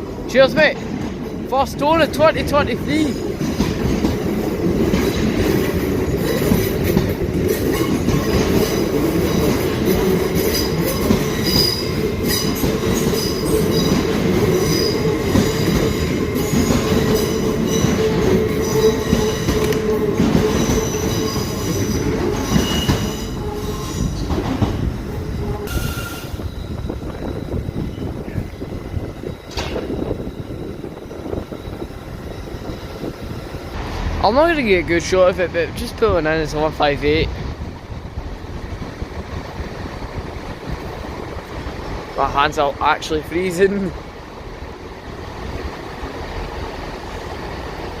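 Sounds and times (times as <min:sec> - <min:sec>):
wheels rumbling on rail: 0:00.0 - 0:48.0
high-pitched wheel squeals: 0:10.5 - 0:14.0, 0:14.6 - 0:15.8, 0:20.5 - 0:24.3, 0:25.3 - 0:33.0.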